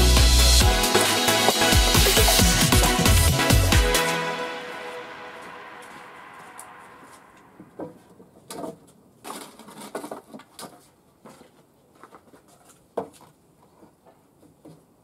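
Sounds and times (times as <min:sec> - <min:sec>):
wooden parts and tools clattering: 0:07.6 - 0:15.0.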